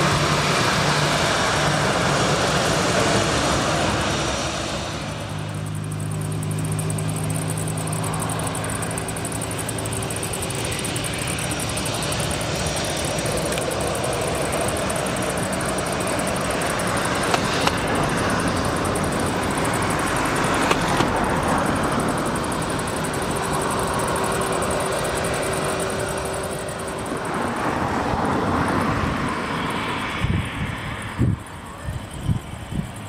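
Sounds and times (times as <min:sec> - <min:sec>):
jet engines running: 0:00.0 - 0:33.0
sharp clicks: 0:05.3 - 0:28.9.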